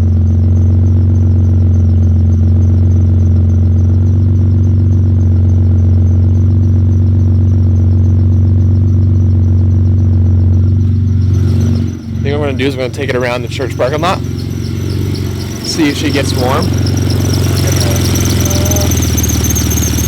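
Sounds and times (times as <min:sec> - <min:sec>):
car engine idling with misfire: 0:00.0 - 0:20.0
faint high-pitched chirp: 0:10.0 - 0:20.0.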